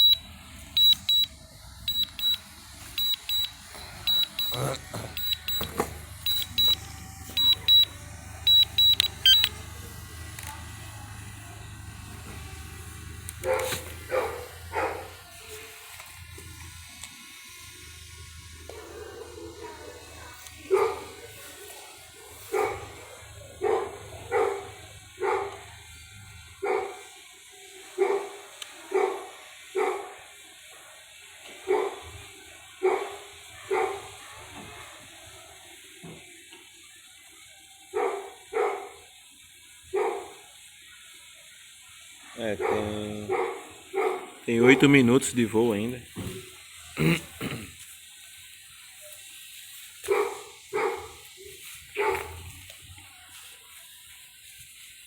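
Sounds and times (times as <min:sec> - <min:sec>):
remote controller short high beeps: 0:00.0 - 0:01.3, 0:01.9 - 0:02.4, 0:03.0 - 0:04.6, 0:05.2 - 0:09.7
steady low hum: 0:00.0 - 0:26.7
dog barking: 0:13.4 - 0:15.2, 0:18.7 - 0:21.3, 0:22.2 - 0:25.7, 0:26.6 - 0:27.1, 0:28.0 - 0:30.2, 0:31.7 - 0:32.1, 0:32.8 - 0:35.0, 0:37.9 - 0:39.0, 0:39.9 - 0:40.5, 0:42.5 - 0:44.9, 0:50.0 - 0:52.5.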